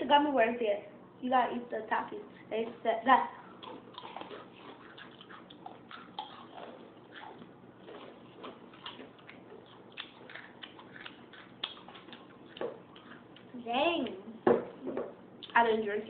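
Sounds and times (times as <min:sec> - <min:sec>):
chips being crunched and chewed: 0:03.6 - 0:13.5.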